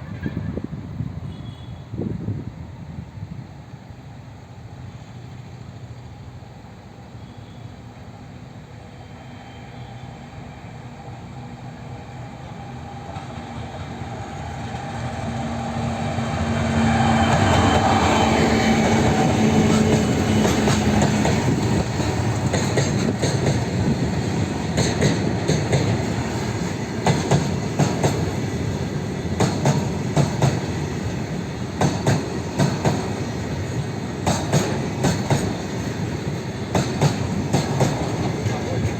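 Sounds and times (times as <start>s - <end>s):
locomotive hum: 2.3s - 38.9s
train wheels clattering over rail joints: 16.6s - 38.9s.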